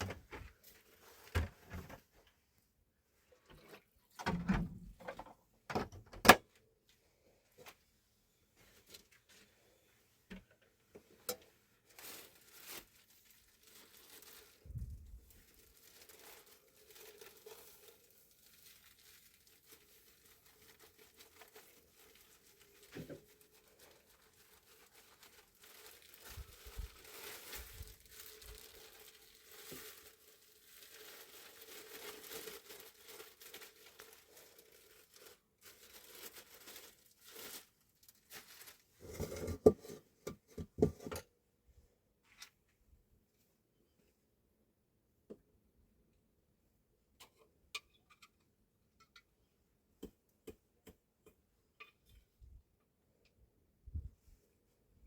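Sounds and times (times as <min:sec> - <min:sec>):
rustling and crinkling: 0:00.0 - 0:41.4, 0:42.1 - 0:43.6.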